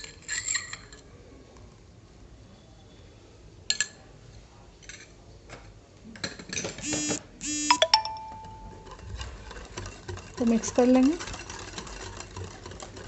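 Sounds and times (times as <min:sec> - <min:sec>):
spoon clinking against a bowl: 0:07.7 - 0:13.0.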